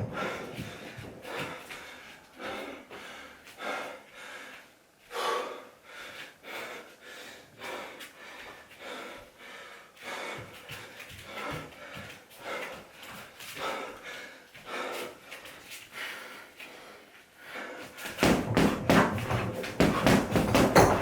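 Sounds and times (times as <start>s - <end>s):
punches thudding on heavy bag: 18.0s - 21.0s.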